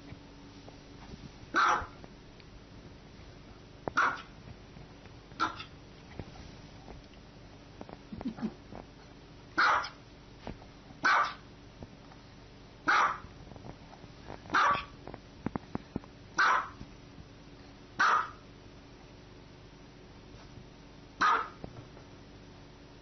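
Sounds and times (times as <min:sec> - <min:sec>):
small dog barking: 0:01.5 - 0:02.0, 0:04.0 - 0:04.4, 0:05.4 - 0:05.7, 0:09.6 - 0:10.0, 0:11.0 - 0:11.5, 0:12.8 - 0:13.3, 0:14.5 - 0:15.0, 0:16.4 - 0:16.8, 0:18.0 - 0:18.4, 0:21.2 - 0:21.6.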